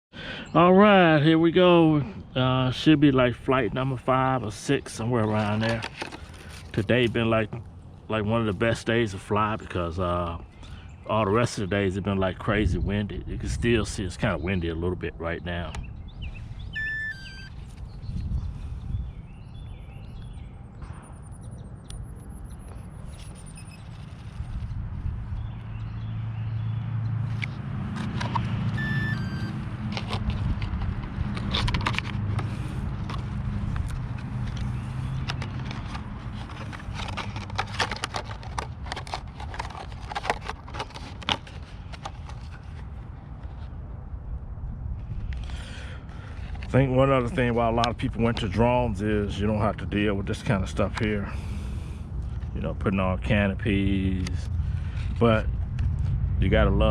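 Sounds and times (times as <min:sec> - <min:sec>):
plastic clicks and scrapes: 0:05.4 - 0:06.9, 0:27.3 - 0:42.9
birds chirping: 0:13.9 - 0:27.6
wind buffeting microphone: 0:17.8 - 0:20.4, 0:24.4 - 0:26.0.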